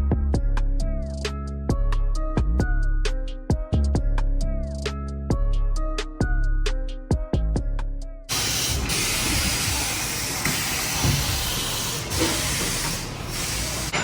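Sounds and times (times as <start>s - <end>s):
background music: 0.0s - 8.9s
loud rushing hiss: 8.3s - 14.0s.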